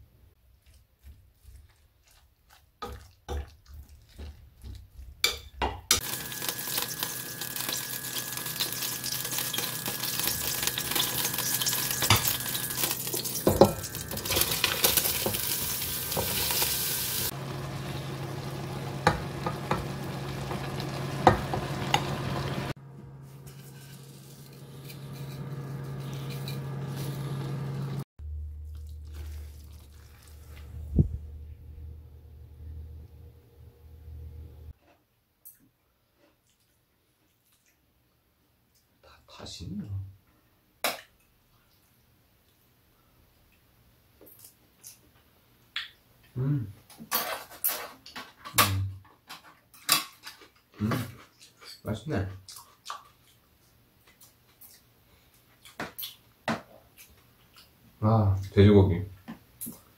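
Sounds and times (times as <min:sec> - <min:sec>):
food sizzling in a pot: 0:05.3 - 0:28.0
utensil clinking and scraping pot: 0:23.4 - 0:27.2.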